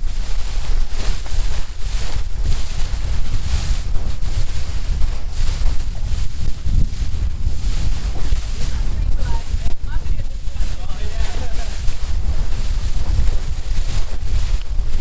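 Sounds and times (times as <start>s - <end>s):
wind buffeting microphone: 0.0s - 15.0s
boat engine low rumble: 3.4s - 15.0s.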